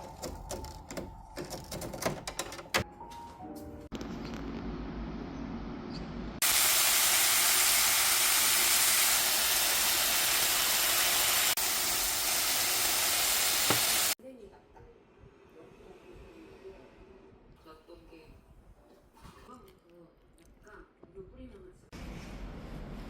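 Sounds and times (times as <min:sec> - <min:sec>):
loud steady hiss: 0:06.4 - 0:14.2.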